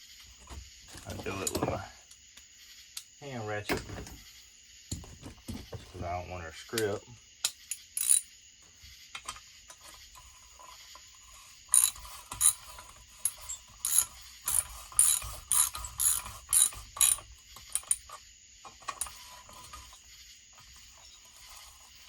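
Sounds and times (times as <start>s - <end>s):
hand ratchet clicking: 7.4s - 8.2s, 11.7s - 12.6s, 13.2s - 18.0s.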